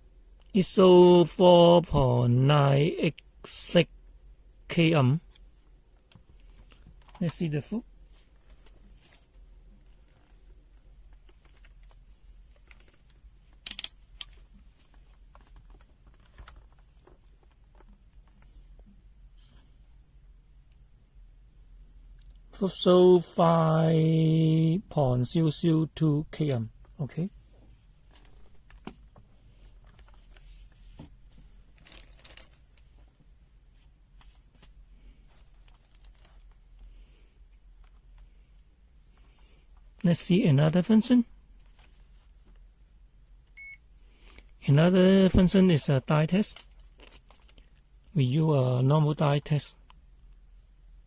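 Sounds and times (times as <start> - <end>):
multimeter probes clicking and tapping: 13.6 - 14.4
handling rustles: 26.5 - 37.0.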